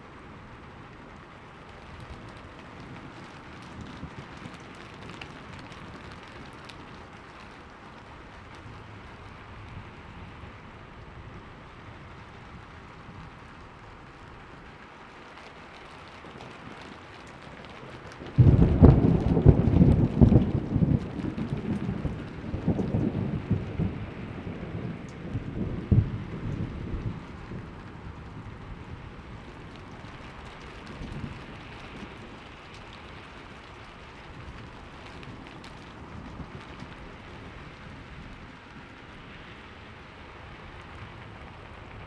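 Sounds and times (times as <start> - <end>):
rain falling: 0.0 - 42.0
loud thunder clap: 18.4 - 24.0.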